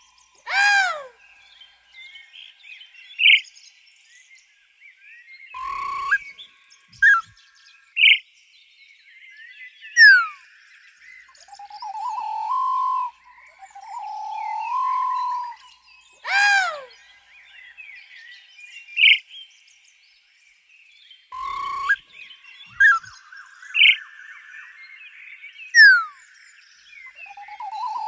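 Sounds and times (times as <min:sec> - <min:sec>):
bird chirps: 0:00.0 - 0:08.2, 0:09.3 - 0:19.9, 0:21.2 - 0:28.0
quick falling bird whistle: 0:05.6 - 0:06.3, 0:07.0 - 0:07.3, 0:21.4 - 0:22.0
pulsing rising bird call: 0:21.4 - 0:22.0.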